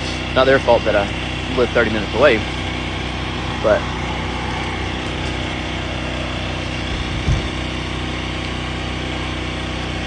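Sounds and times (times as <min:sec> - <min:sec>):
engine idling: 0:00.0 - 0:10.0
low thud: 0:06.9 - 0:07.6.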